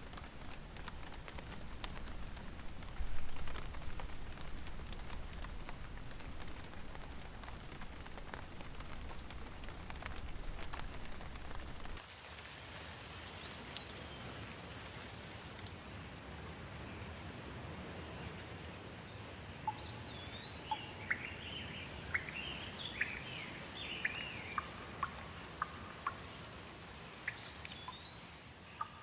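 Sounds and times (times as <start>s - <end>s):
outdoor hiss: 0.0s - 17.6s, 21.0s - 28.8s
songbirds chirping: 16.3s - 29.0s.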